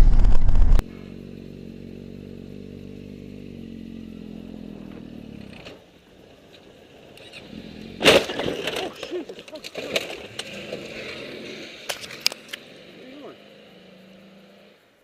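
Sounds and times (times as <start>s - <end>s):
vehicle engine running: 0.0s - 8.8s.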